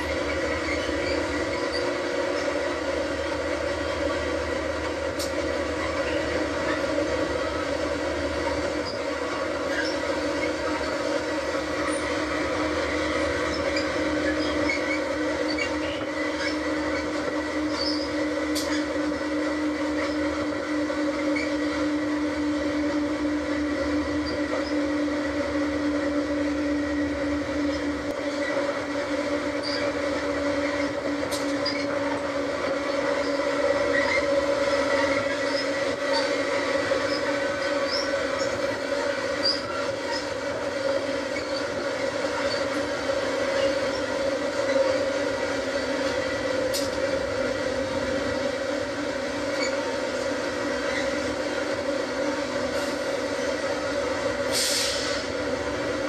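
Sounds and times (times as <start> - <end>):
train engine drone: 0.0 - 56.0.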